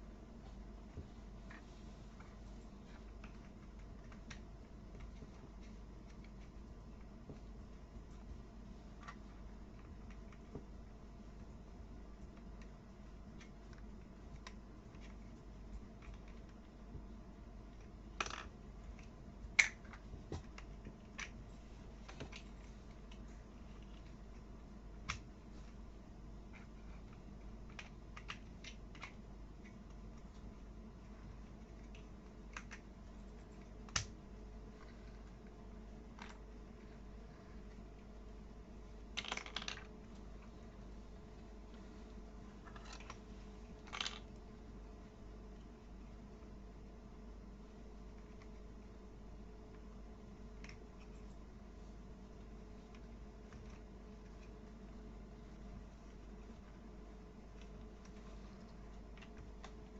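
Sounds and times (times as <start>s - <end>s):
plastic toy pieces clicking: 39.2s - 39.9s.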